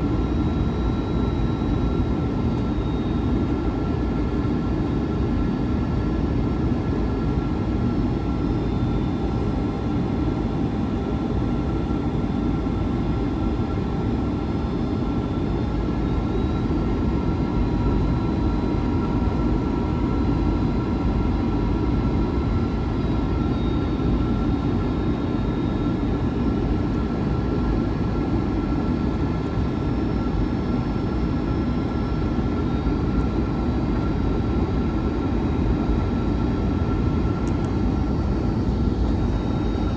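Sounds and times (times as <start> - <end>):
jet cabin engine roar: 0.0 - 39.9.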